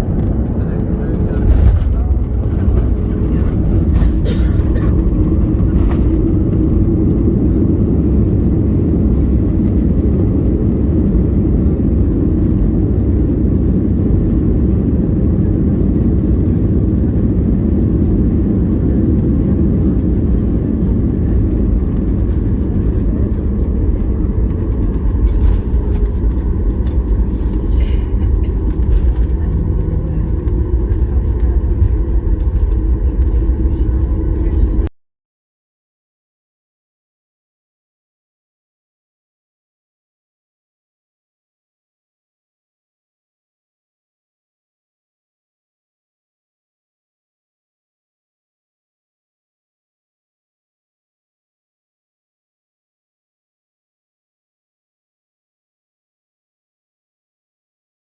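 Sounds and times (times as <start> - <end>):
road rumble inside vehicle: 0.0 - 34.9.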